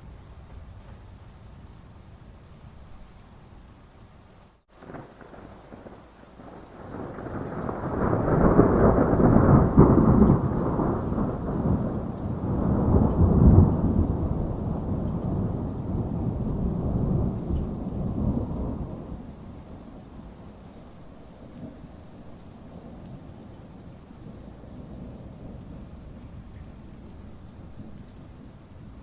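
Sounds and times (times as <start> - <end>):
steady rain: 0.0 - 29.0
rolling thunder: 4.8 - 20.0.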